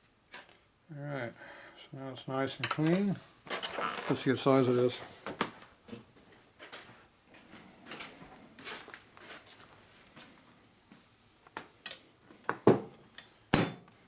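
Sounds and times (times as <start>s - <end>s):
metal tools rustling on workbench: 2.6s - 4.5s.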